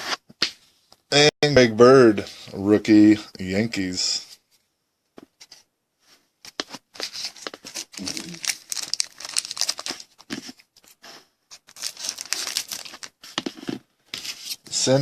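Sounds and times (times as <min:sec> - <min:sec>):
plastic wrapper crinkling and tearing: 0:07.0 - 0:13.6.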